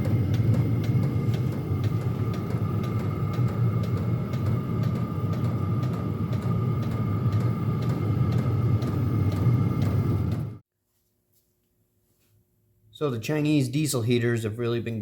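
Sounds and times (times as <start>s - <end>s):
heater combustion rumble: 0.0s - 10.6s.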